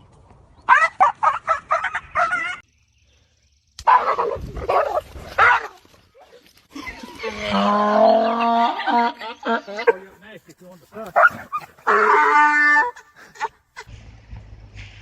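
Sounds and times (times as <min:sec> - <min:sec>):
dog barking: 0:03.9 - 0:05.8, 0:11.1 - 0:12.4.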